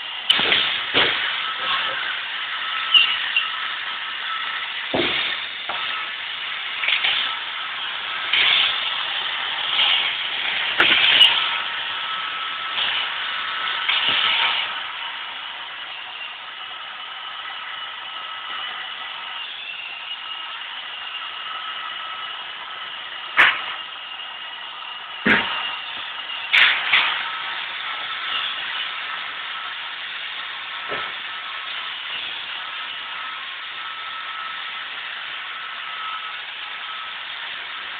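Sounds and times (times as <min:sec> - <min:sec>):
robot vacuum motor whine: 0:00.0 - 0:37.9
sharp knocks: 0:04.9 - 0:05.8, 0:25.3 - 0:25.6.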